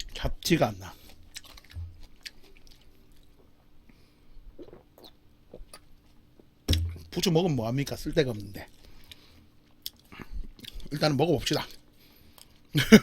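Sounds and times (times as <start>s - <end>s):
soft chewing: 0.0s - 6.6s, 8.3s - 12.8s.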